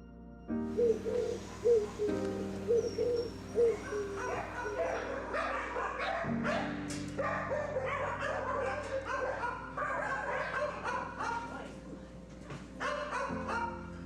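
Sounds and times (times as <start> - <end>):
dogs barking and yipping: 0.8 - 11.8, 12.8 - 14.0.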